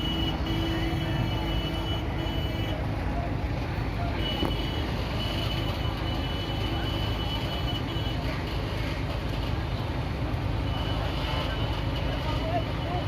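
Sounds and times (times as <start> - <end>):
heavy vehicle engines rumbling: 0.0 - 13.0.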